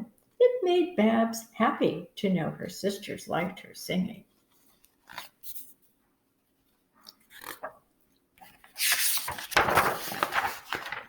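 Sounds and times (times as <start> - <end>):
book pages rustling: 4.3 - 5.9, 6.6 - 11.0.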